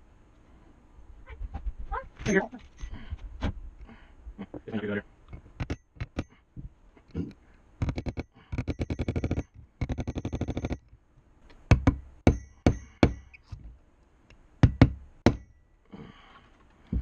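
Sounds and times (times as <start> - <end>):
rapid hammer taps: 5.3 - 6.8, 7.8 - 13.8, 14.6 - 15.6
hammer ringing metal strikes: 12.2 - 13.4, 14.6 - 15.8.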